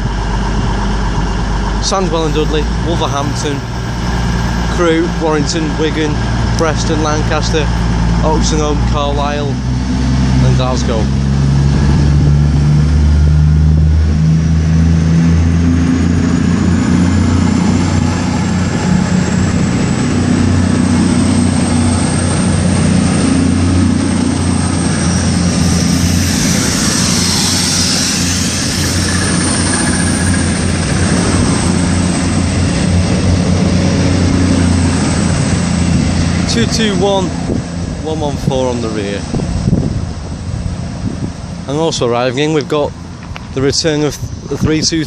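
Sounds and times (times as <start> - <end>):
diesel train engines running: 0.0 - 45.0
high whine rising in pitch: 0.0 - 45.0
rush of hiss: 25.2 - 31.2.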